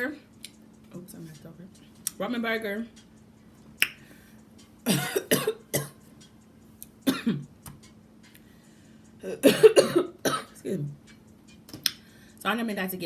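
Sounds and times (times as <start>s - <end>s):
woman coughing: 4.8s - 6.0s, 7.0s - 7.4s, 9.2s - 10.8s.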